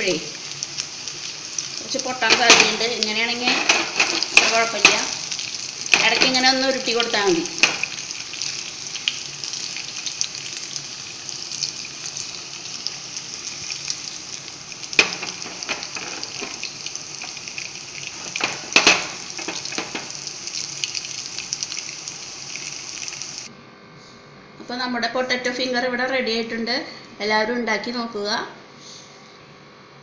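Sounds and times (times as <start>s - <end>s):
food sizzling in frying oil: 0.0s - 23.5s.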